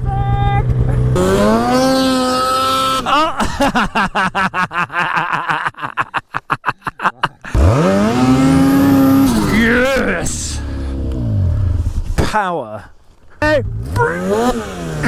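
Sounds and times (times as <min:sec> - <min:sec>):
snowmobile engine revving: 0:00.0 - 0:03.6, 0:07.5 - 0:12.1, 0:13.4 - 0:15.0.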